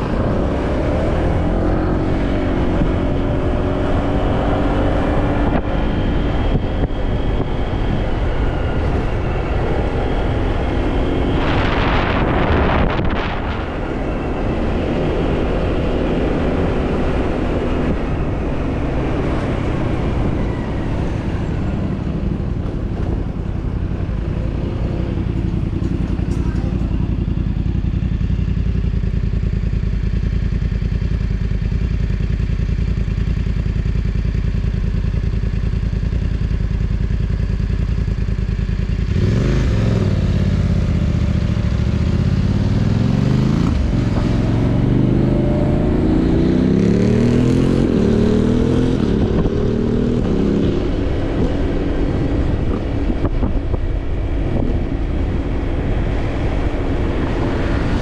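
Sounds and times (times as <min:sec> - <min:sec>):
motorcycle accelerating through gears: 0:00.0 - 0:58.0
motorcycle engine idling: 0:20.6 - 0:39.2.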